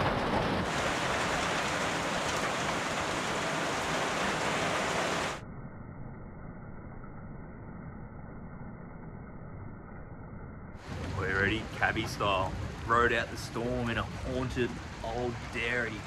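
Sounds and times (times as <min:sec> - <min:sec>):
heavy rain pouring: 0:00.0 - 0:05.4, 0:10.8 - 0:16.0
rain running off a corrugated roof: 0:00.0 - 0:05.4, 0:10.8 - 0:16.0.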